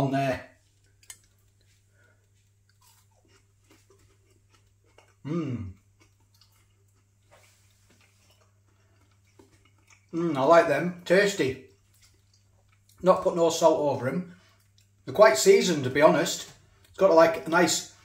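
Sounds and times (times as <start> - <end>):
chewing crispy chip: 0.6 - 10.3, 11.6 - 13.0, 14.4 - 15.1
person murmuring mmm: 5.1 - 5.9.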